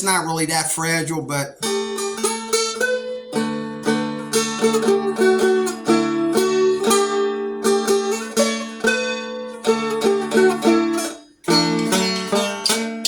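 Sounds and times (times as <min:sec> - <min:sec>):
plucked dulcimer melody with drone: 0:01.6 - 0:13.0.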